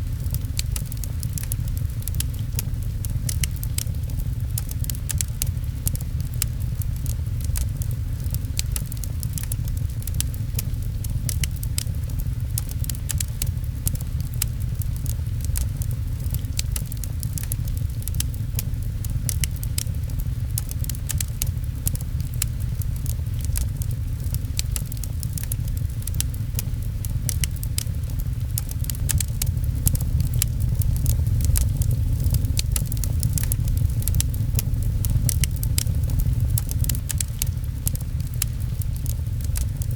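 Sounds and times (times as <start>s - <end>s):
fireplace crackling and popping: 0.0s - 39.9s
low rumble of rain: 0.0s - 39.9s.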